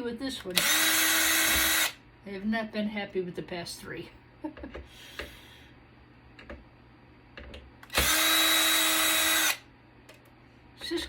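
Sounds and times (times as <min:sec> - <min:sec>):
power drill running: 0:00.6 - 0:02.0, 0:07.9 - 0:09.6.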